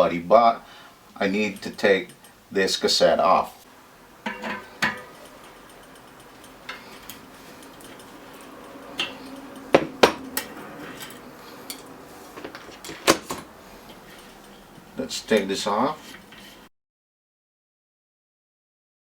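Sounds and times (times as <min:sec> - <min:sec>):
metal tools clinking: 0:01.3 - 0:02.4, 0:04.2 - 0:16.7.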